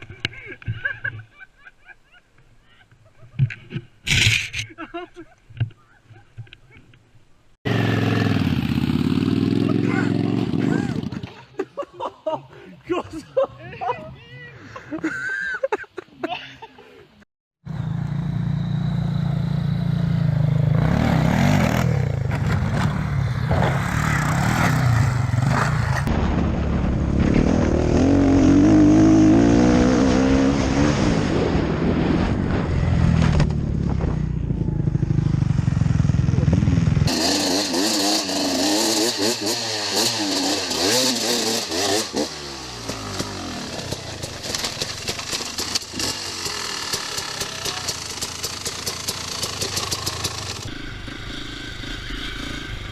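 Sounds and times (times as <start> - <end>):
dirt bike engines revving: 7.7 - 11.8, 17.7 - 26.1, 27.3 - 31.9, 32.6 - 52.9
lighter hissier bike engine: 45.2 - 52.7.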